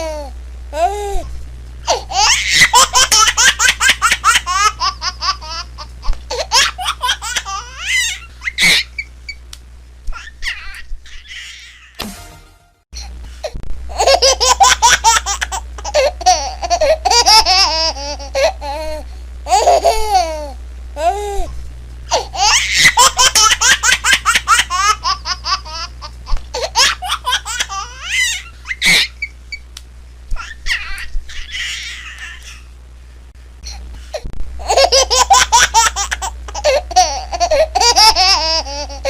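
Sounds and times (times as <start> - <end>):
baby giggling: 1.9 - 9.1, 13.9 - 21.2, 34.6 - 39.0.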